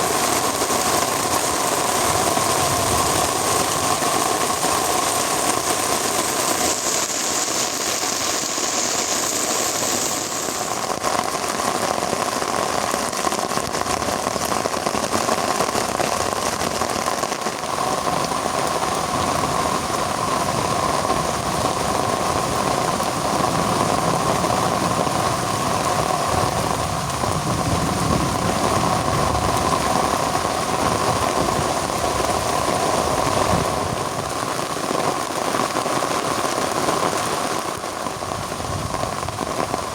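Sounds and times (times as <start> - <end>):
heavy rain pouring: 0.0 - 39.9
high hiss: 4.6 - 11.2.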